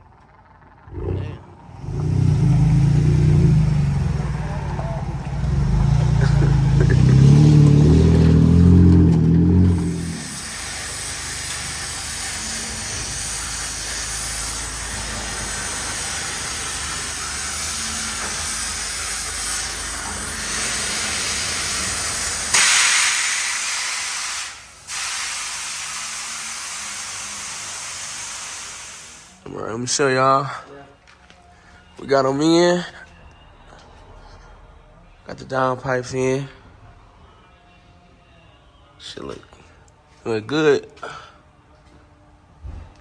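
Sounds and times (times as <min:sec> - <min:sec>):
truck engine running loudly: 0:00.0 - 0:23.3
steady hiss: 0:09.7 - 0:29.4.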